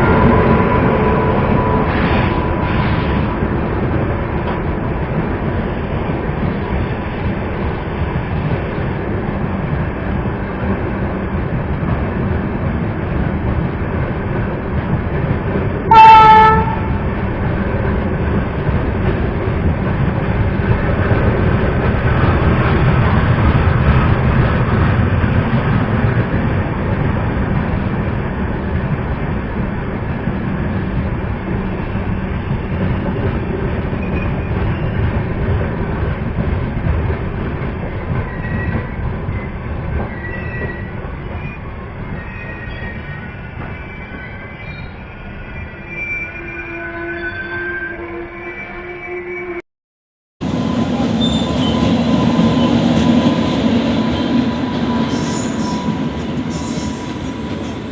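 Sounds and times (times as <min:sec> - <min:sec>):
train rumbling along track: 0:00.0 - 0:48.1, 0:50.4 - 0:57.9
high-pitched train horn blast: 0:15.9 - 0:17.1, 0:51.2 - 0:52.8.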